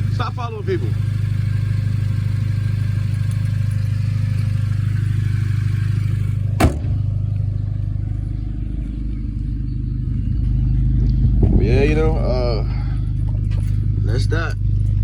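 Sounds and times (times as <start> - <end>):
car engine idling: 0.0 - 15.0
sharp thump: 6.6 - 7.1.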